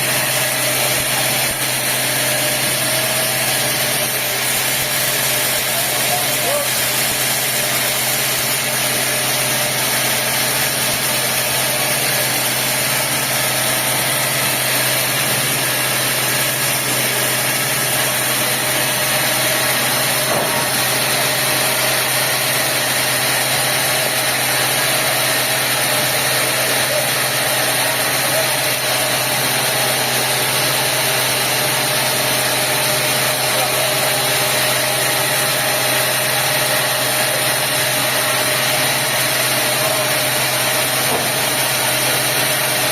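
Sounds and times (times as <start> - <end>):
sawmill machinery drone: 0.0 - 42.9.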